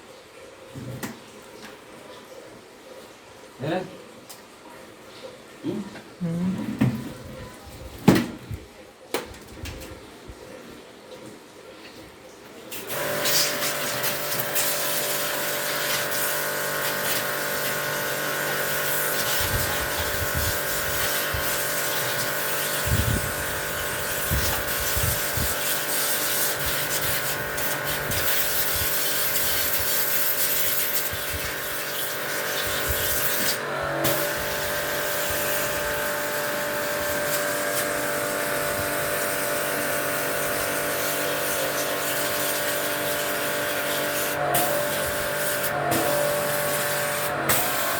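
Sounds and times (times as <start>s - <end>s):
blower hissing: 12.8s - 47.9s.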